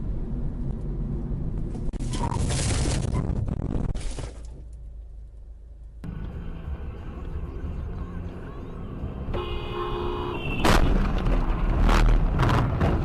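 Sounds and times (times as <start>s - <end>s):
car rumble: 0.0s - 13.0s
car horn: 9.2s - 11.0s.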